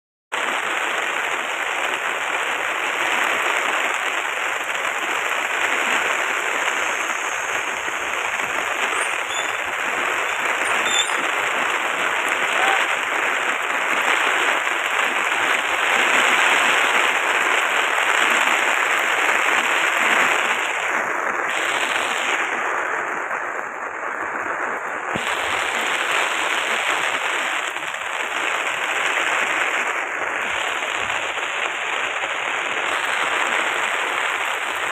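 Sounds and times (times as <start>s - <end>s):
floodwater rushing: 0.4s - 22.7s.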